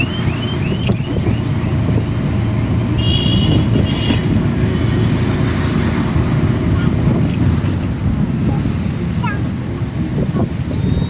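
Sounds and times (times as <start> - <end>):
car alarm whooping: 0.0 - 1.8
street traffic: 0.0 - 11.0.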